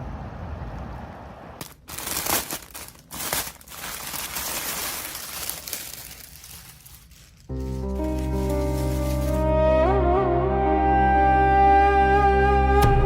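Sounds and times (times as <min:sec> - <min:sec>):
packaging crinkling and rustling: 0:01.6 - 0:09.5.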